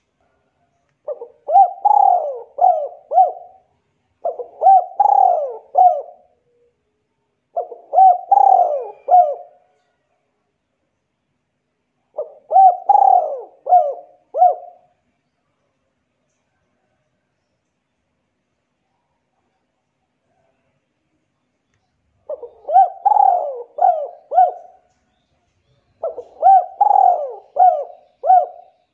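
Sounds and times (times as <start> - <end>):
bird calling: 1.0 - 3.7, 4.3 - 6.7, 7.6 - 9.6, 12.1 - 14.9, 22.2 - 28.9.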